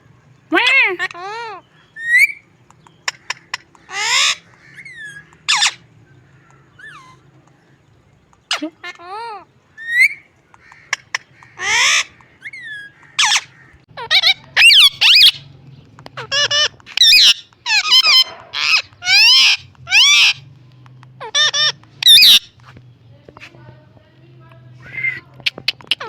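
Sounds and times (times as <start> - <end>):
parrot whistles and squawks: 0.6 - 2.4, 3.0 - 5.9, 6.7 - 7.2, 9.8 - 15.5, 16.2 - 20.4, 21.2 - 22.5.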